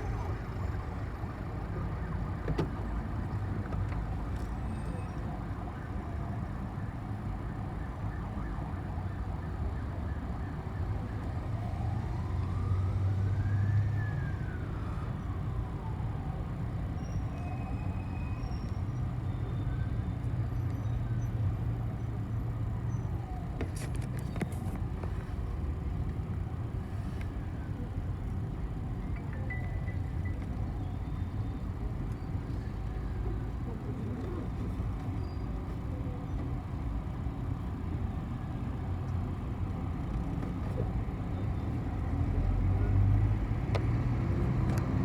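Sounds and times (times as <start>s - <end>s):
bus engine running: 0.0s - 4.9s.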